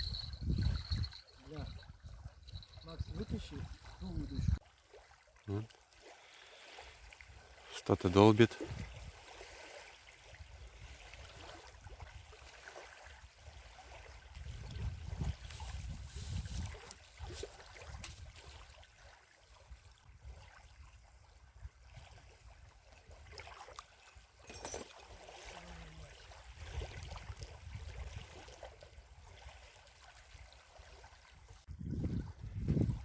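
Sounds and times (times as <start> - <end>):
wind gusting on microphone: 0.0 - 4.6, 8.7 - 9.1, 14.4 - 17.3, 31.7 - 33.0
water lapping at shore: 0.0 - 33.0.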